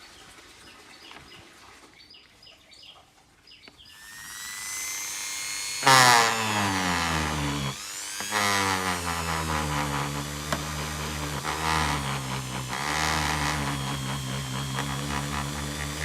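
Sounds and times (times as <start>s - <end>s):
small electric power tool running: 3.9s - 16.0s.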